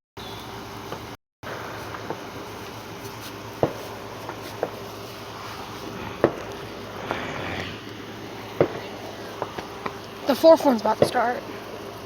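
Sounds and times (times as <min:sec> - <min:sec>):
outdoor background noise: 0:00.2 - 0:12.0
firework bangs: 0:03.6 - 0:07.8, 0:08.5 - 0:10.0.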